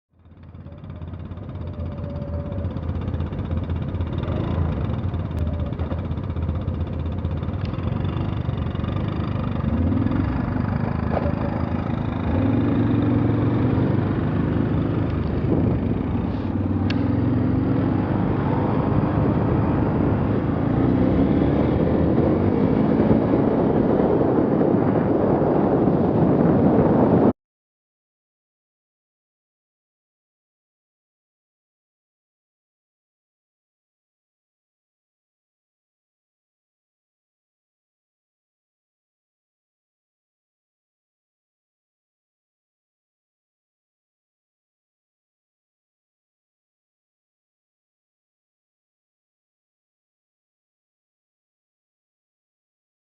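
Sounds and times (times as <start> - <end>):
vehicle engine revving: 0.3 - 27.0.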